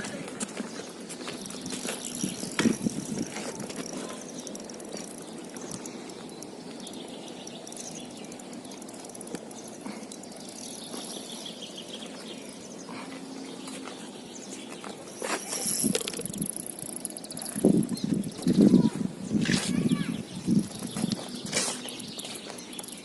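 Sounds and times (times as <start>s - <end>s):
small birds chirping: 0.0s - 23.0s
clicks and rustles: 0.2s - 11.6s.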